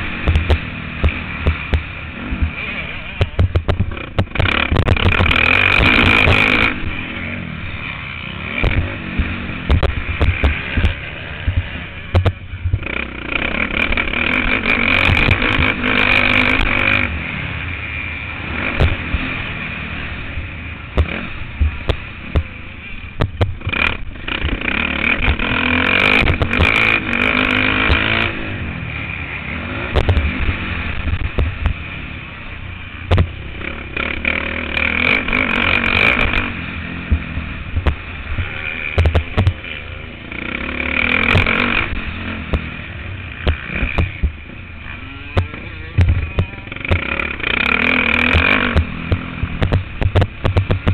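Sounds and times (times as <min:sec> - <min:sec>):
motocross motorcycle engine revving: 0:00.0 - 0:50.9
knocks and clatter: 0:00.2 - 0:02.6, 0:03.2 - 0:06.8, 0:08.6 - 0:13.0, 0:23.2 - 0:24.6, 0:33.1 - 0:33.4, 0:38.9 - 0:39.6, 0:48.1 - 0:50.9.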